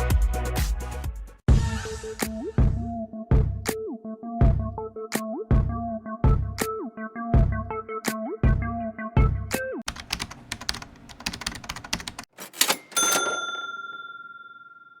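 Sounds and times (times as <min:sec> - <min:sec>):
bell-like ding: 0:12.5 - 0:15.0.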